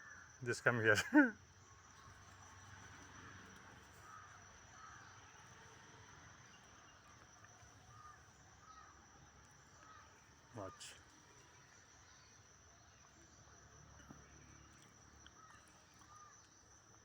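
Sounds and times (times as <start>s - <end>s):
insect drone: 0.0s - 17.0s
distant crow caws: 3.9s - 5.4s, 7.8s - 9.0s, 9.7s - 11.0s.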